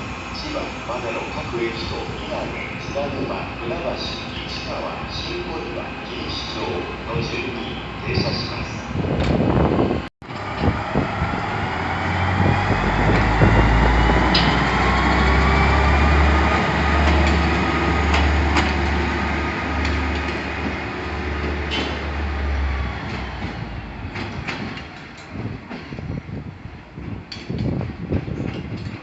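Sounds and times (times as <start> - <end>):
train rumbling past: 0.0 - 29.0.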